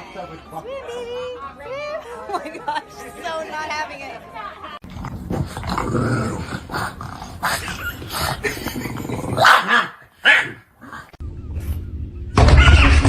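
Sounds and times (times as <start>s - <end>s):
dog barking and growling: 4.8s - 11.2s, 12.4s - 13.0s.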